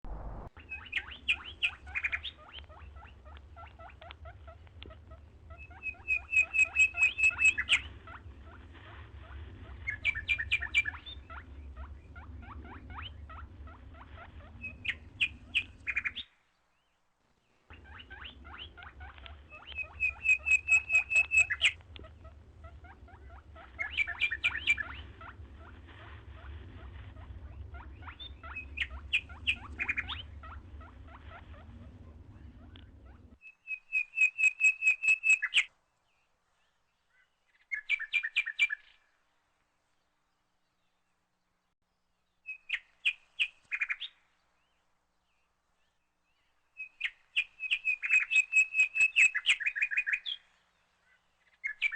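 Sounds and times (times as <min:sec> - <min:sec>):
steady low rumble: 0:00.0 - 0:16.2, 0:17.7 - 0:33.4
songbirds singing: 0:00.6 - 0:39.2, 0:39.9 - 0:51.9.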